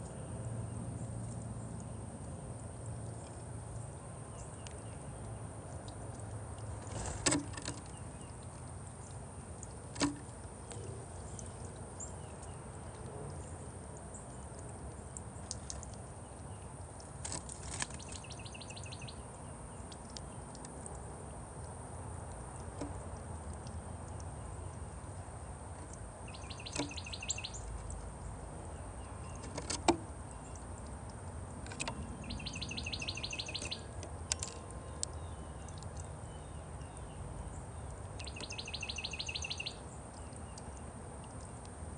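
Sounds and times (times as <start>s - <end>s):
low outdoor background noise: 0.0s - 41.9s
songbird trilling: 17.8s - 19.3s, 26.2s - 28.0s, 31.7s - 40.8s.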